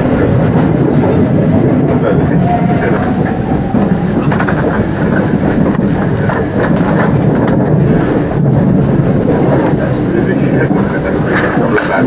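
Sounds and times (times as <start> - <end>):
train wheels rumbling on rails: 0.0 - 12.0
wheels clicking over rail joints: 0.0 - 12.0.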